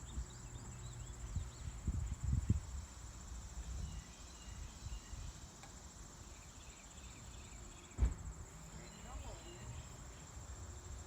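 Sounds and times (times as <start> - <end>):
crickets trilling: 0.0 - 11.0
thump: 7.9 - 8.4.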